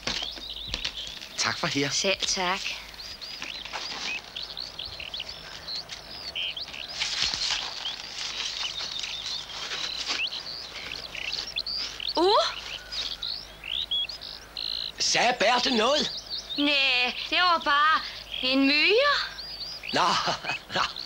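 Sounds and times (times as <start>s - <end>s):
songbirds chirping and singing: 0.0s - 21.0s
rising bird call: 2.5s - 21.0s.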